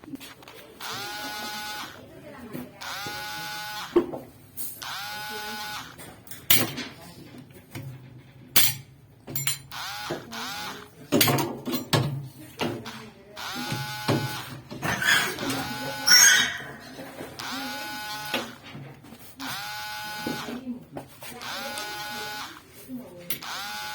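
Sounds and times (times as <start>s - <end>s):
power drill spinning: 0.8s - 2.0s, 2.8s - 4.0s, 4.8s - 6.0s, 9.7s - 10.9s, 12.8s - 18.6s, 19.4s - 20.6s, 21.3s - 23.9s.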